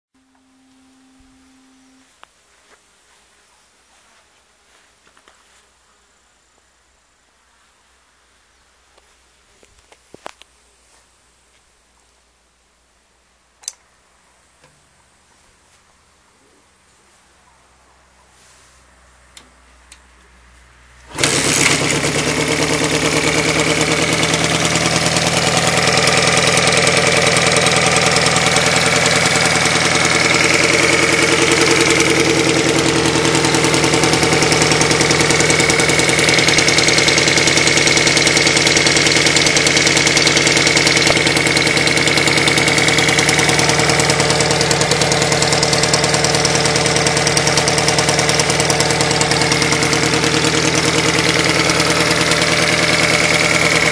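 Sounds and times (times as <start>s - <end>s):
motorcycle engine starting and idling: 21.0s - 53.9s.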